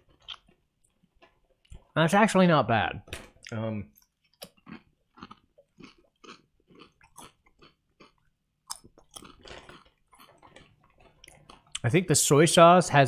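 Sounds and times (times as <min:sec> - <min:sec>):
potato chips crunching: 0:04.0 - 0:11.9.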